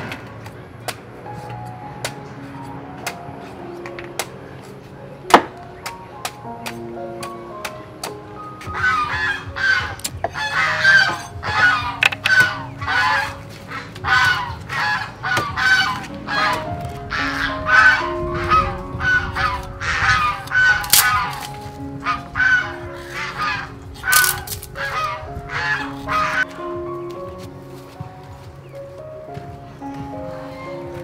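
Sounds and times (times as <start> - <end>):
soft background music: 0.0 - 31.0
goose-like honking bird calls: 8.8 - 26.5.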